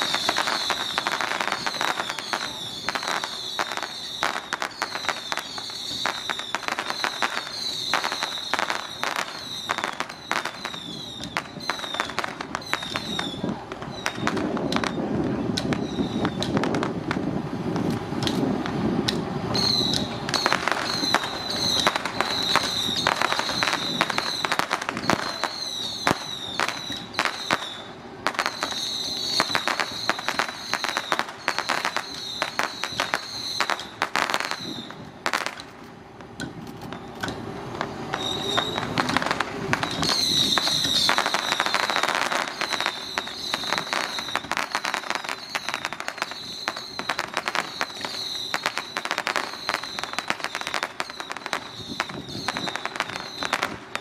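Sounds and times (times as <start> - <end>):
firecrackers crackling: 0.0 - 54.0.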